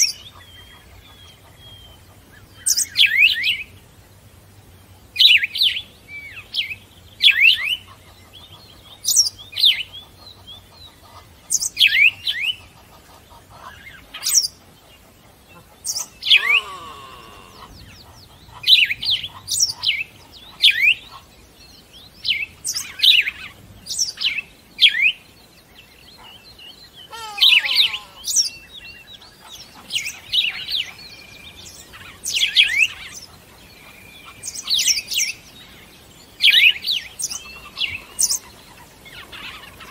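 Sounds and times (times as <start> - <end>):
bird chirping: 5.1 - 39.9
lower longer bird call: 16.0 - 18.8, 26.9 - 28.8.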